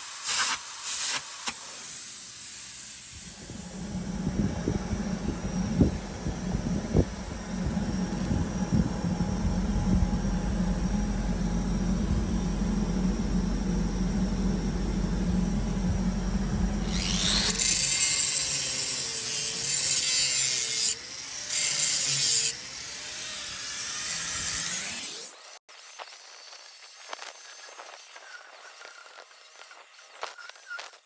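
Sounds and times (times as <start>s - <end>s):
loud rushing hiss: 0.0s - 5.3s
low machine hum: 3.2s - 18.0s.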